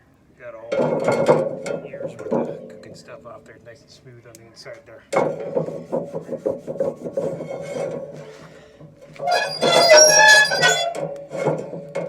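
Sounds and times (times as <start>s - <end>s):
scrubbing and scraping a metal pan: 5.2s - 8.5s, 9.2s - 12.0s.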